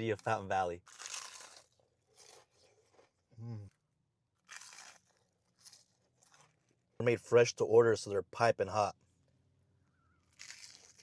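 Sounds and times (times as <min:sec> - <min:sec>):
crunching bites and chewing: 0:00.0 - 0:06.9, 0:10.2 - 0:11.0.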